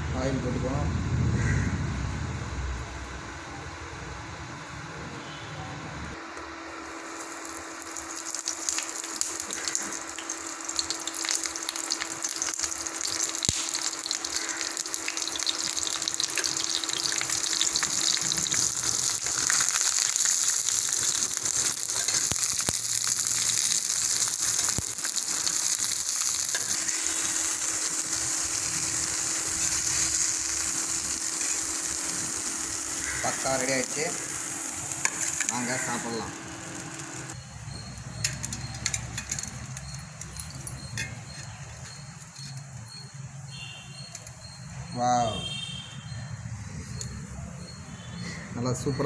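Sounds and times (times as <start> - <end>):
fish frying in hot oil: 6.8 - 39.6.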